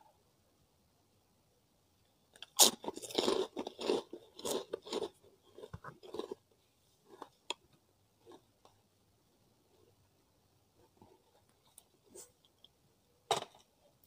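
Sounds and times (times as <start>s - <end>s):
cracker crunching: 2.4s - 7.6s.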